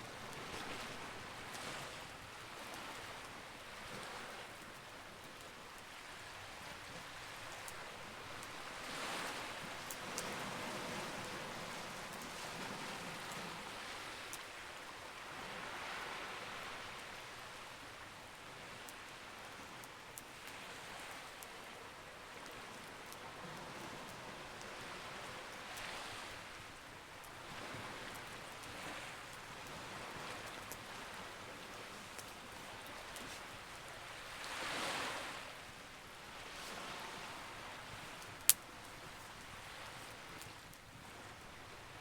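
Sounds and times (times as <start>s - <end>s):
sea waves: 0.0s - 5.4s, 6.0s - 17.9s, 20.3s - 42.0s
campfire crackling: 0.1s - 14.9s, 24.0s - 42.0s.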